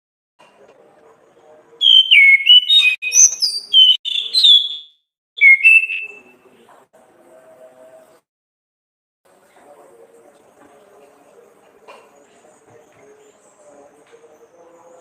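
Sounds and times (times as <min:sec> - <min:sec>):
bird whistled song: 0:01.8 - 0:06.3.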